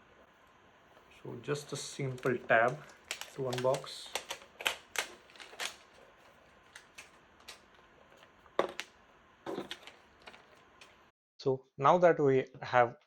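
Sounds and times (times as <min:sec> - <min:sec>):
plastic wrap crinkling: 0:00.9 - 0:08.9
clicks: 0:02.0 - 0:05.8.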